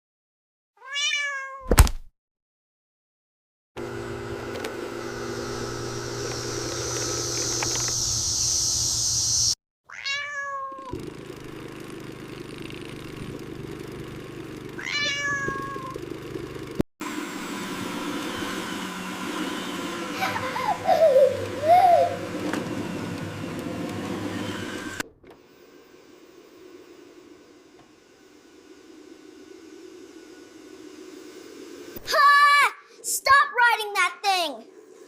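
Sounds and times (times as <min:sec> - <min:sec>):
cat meowing: 0:00.8 - 0:01.7, 0:09.9 - 0:10.9, 0:14.8 - 0:15.9.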